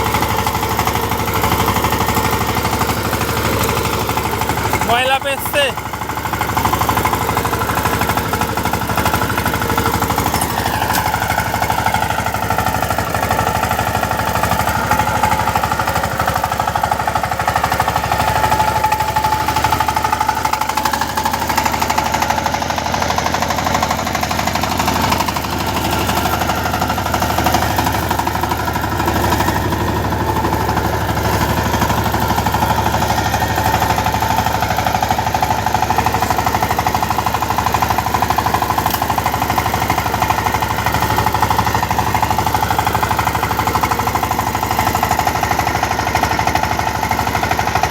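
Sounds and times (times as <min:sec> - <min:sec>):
diesel engine clattering: 0:00.0 - 0:47.9.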